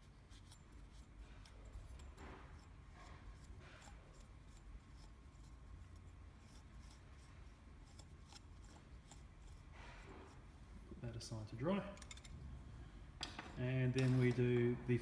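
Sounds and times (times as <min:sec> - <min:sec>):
low room hum: 0:00.0 - 0:15.0
light clicks of tool parts: 0:11.9 - 0:12.4.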